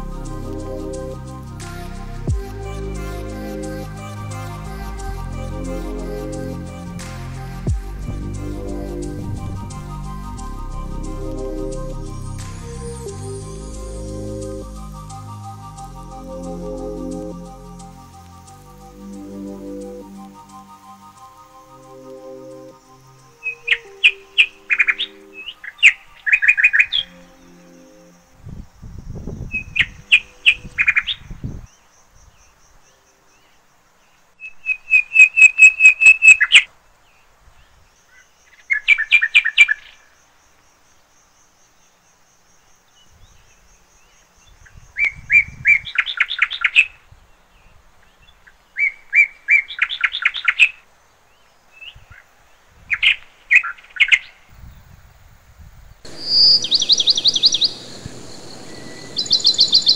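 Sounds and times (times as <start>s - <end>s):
thin high pulsing call: 0.0s - 28.5s, 34.4s - 36.7s, 56.1s - 59.9s
bird singing trilled phrases: 23.3s - 28.1s, 34.4s - 36.7s, 56.1s - 59.9s.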